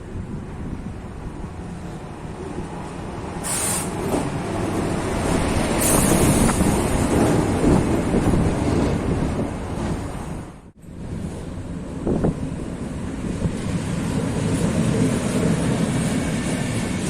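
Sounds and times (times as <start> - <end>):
train rolling rumble: 0.0 - 17.0
short high hisses: 3.4 - 4.0
wind on microphone: 5.0 - 17.0.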